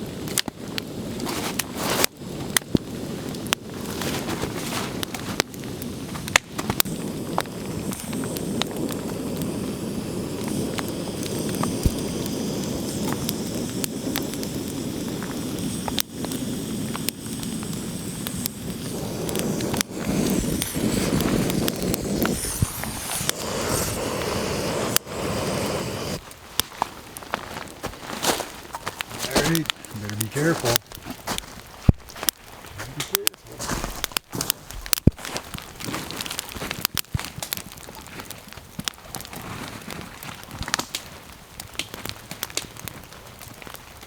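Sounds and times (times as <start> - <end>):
fire crackling and popping: 0.0 - 44.0
steady rushing noise: 6.4 - 26.2.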